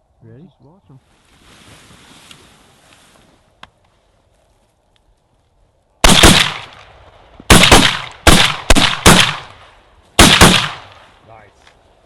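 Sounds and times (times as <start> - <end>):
shotgun blasts with echo: 6.0 - 11.1.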